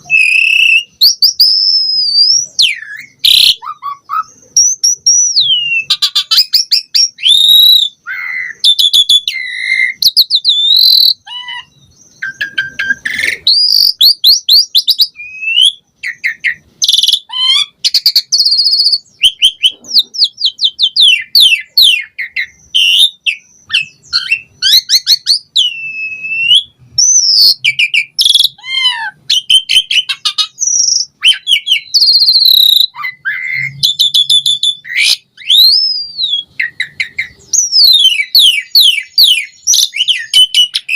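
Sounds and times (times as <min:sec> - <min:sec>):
bird singing whistles and trills: 0:00.0 - 0:40.9.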